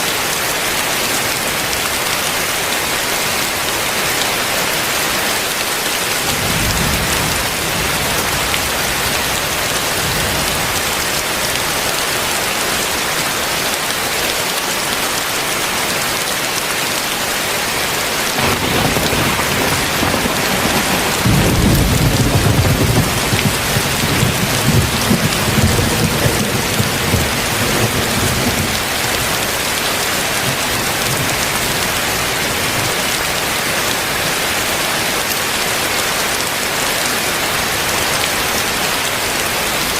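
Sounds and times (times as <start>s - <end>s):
heavy rain falling: 0.0s - 39.9s
thunder rumbling: 6.3s - 11.4s, 18.4s - 32.9s.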